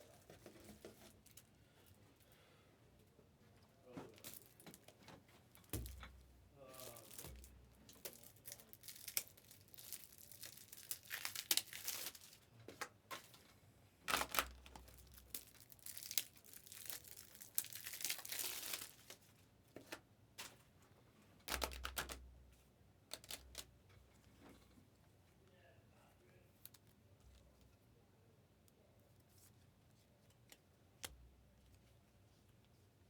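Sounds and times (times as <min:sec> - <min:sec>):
packaging crinkling and rustling: 0:04.1 - 0:13.4, 0:14.1 - 0:20.6, 0:21.4 - 0:22.2, 0:23.1 - 0:23.7.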